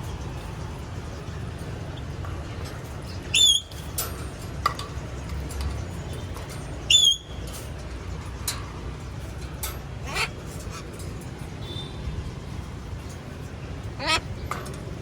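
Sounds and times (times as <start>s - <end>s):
parrot squawking: 10.0s - 10.9s, 13.9s - 14.4s.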